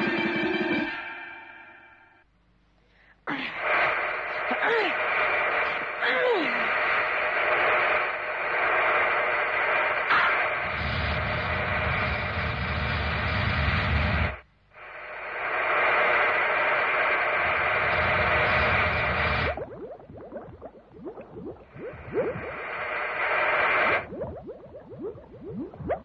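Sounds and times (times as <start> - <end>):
rushing hiss sound effect: 3.6 - 19.6, 21.8 - 24.1
deep rumble: 3.6 - 26.0.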